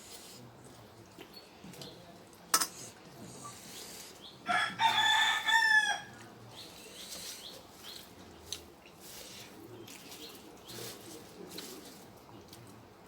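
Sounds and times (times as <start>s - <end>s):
rooster crowing: 4.5s - 6.2s.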